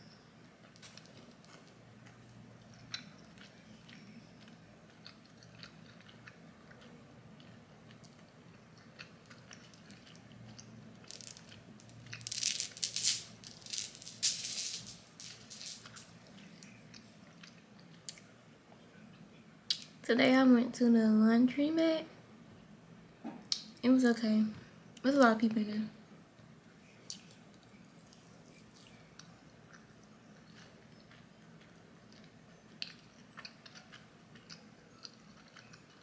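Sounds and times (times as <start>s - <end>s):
low room hum: 0.0s - 36.0s
crackly crunching: 0.6s - 18.3s
person chewing: 4.9s - 10.8s, 29.7s - 36.0s.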